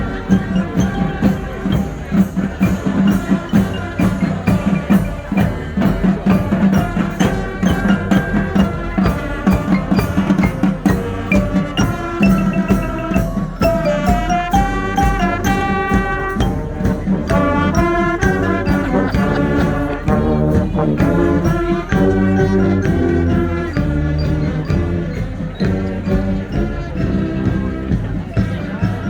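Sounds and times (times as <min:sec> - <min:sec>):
marching band drums: 0:00.0 - 0:29.0
melody notes: 0:06.5 - 0:25.4.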